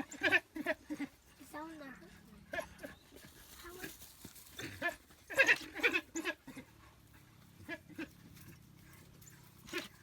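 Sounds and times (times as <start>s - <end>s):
wild dogs yelping: 2.3s - 10.0s.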